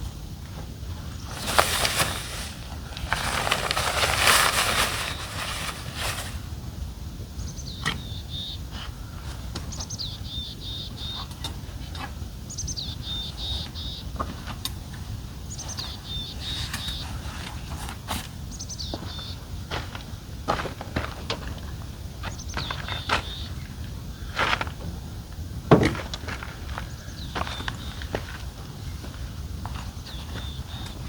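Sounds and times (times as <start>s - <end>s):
rustling handling noise: 0.9s - 6.6s
songbird singing: 7.3s - 17.9s, 18.5s - 19.7s, 22.2s - 31.0s.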